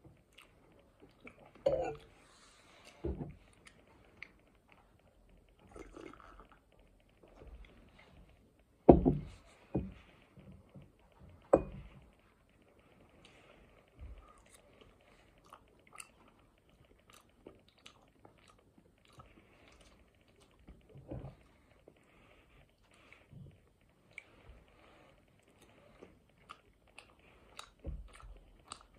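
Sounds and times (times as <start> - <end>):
person chewing: 0.2 - 2.1, 14.2 - 20.9, 22.7 - 28.9.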